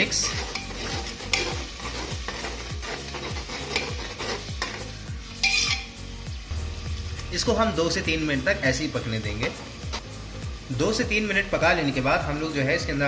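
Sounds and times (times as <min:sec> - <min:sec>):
spatula scraping a pot: 0:00.0 - 0:06.0
onion paste sizzling in oil: 0:00.0 - 0:13.0.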